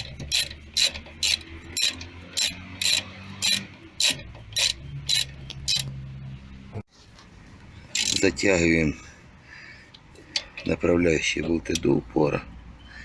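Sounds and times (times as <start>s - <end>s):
ratchet wrench clicking: 0.0s - 6.0s, 7.9s - 8.3s, 9.9s - 12.0s.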